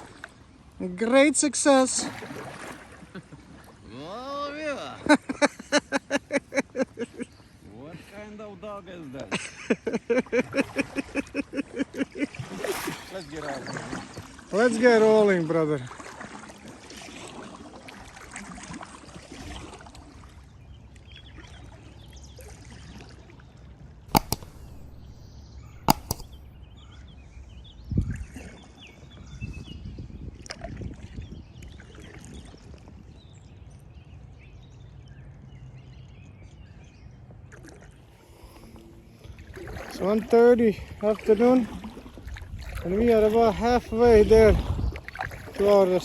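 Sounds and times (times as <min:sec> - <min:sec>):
paddle knocking on kayak: 0:24.1 - 0:26.5
water dripping off paddle: 0:24.1 - 0:26.6, 0:39.4 - 0:43.5, 0:44.9 - 0:46.0.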